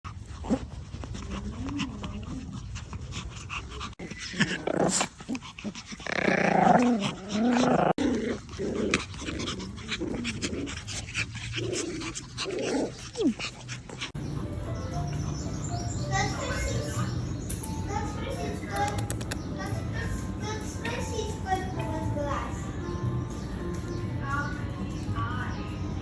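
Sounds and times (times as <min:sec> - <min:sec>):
dog growling: 0:00.1 - 0:14.2.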